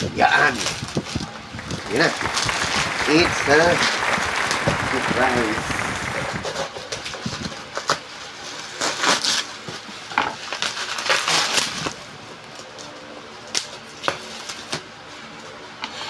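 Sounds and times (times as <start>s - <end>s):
packaging rustling and crinkling: 10.4s - 12.0s.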